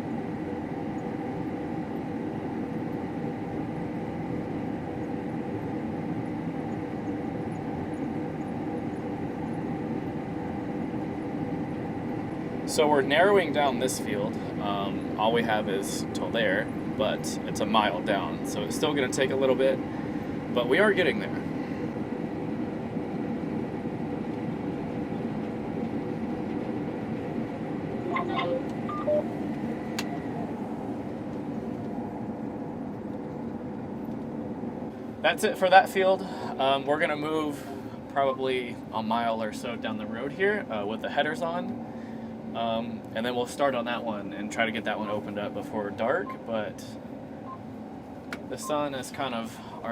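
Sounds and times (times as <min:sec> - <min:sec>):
combine harvester drone: 0:00.0 - 0:49.9
faint high whine: 0:27.9 - 0:31.0, 0:35.2 - 0:40.6, 0:43.5 - 0:47.7, 0:48.5 - 0:49.9
short beeps: 0:28.1 - 0:29.3.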